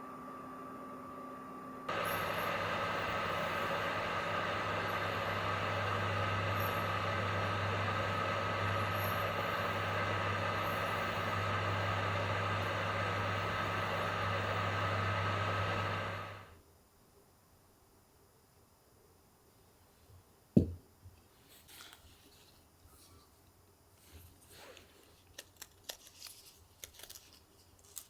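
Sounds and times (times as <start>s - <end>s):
microwave oven humming: 0.0s - 16.6s.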